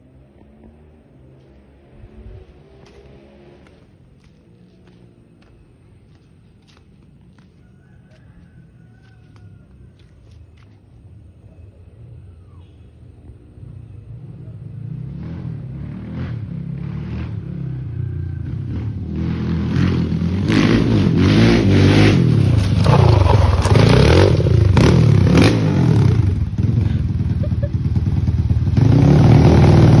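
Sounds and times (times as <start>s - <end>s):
motorbike engine revving: 14.1s - 30.0s.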